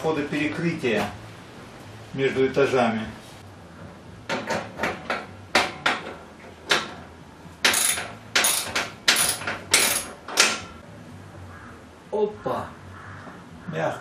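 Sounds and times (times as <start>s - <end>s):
metal pipe fittings clanking: 7.6s - 10.7s.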